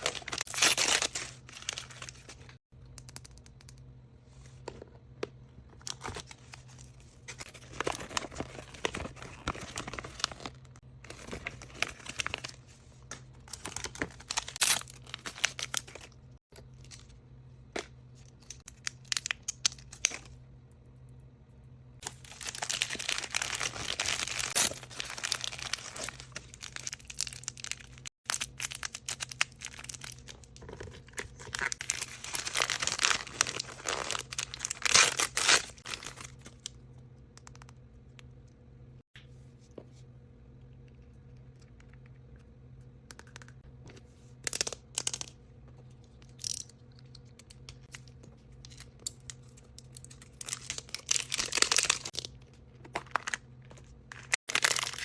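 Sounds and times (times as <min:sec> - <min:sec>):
packaging crinkling and tearing: 0:00.0 - 0:02.6, 0:05.9 - 0:12.6, 0:13.4 - 0:16.2, 0:22.0 - 0:36.7, 0:49.8 - 0:53.5, 0:54.1 - 0:55.0
faint low hum: 0:00.0 - 0:54.3.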